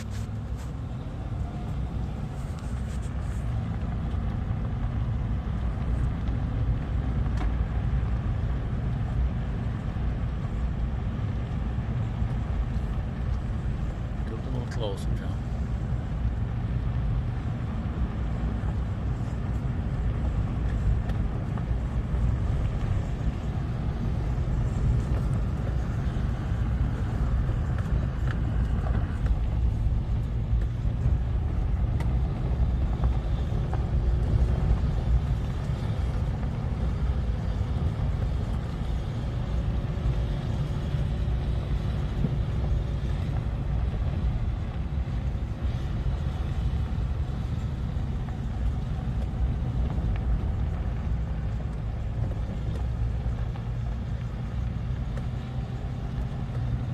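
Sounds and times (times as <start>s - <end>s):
off-road vehicle engines rumbling: 0.0s - 56.9s.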